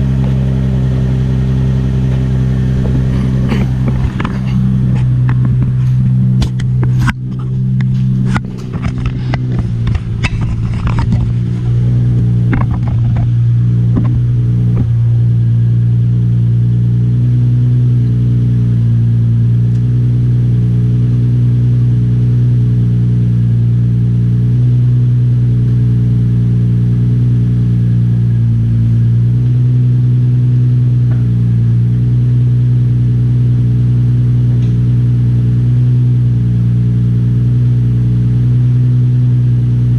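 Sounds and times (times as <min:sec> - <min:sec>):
car engine idling: 0:00.0 - 0:39.9
sharp clicks and knocks: 0:02.0 - 0:15.0.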